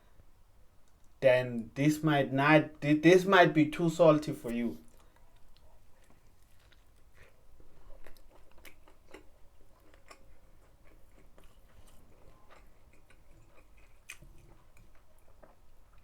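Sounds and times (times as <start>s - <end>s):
person chewing food: 4.8s - 16.0s.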